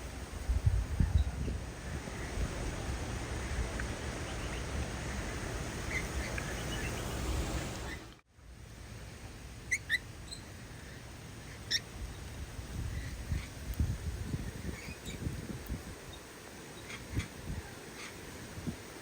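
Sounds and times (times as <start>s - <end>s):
wind rumble on microphone: 0.0s - 8.1s, 9.3s - 19.0s
small birds chirping: 1.0s - 8.2s, 9.7s - 15.3s, 16.1s - 18.3s.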